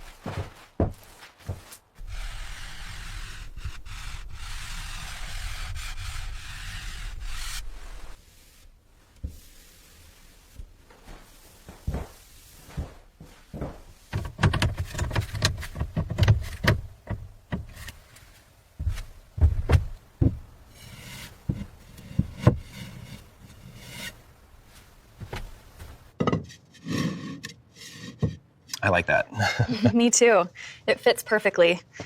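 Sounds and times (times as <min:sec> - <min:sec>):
sharp knocks and thumps: 0:00.0 - 0:01.7, 0:11.7 - 0:18.1, 0:18.8 - 0:23.7, 0:25.2 - 0:26.6
rubbing scraping noise: 0:01.5 - 0:08.8, 0:20.7 - 0:28.4.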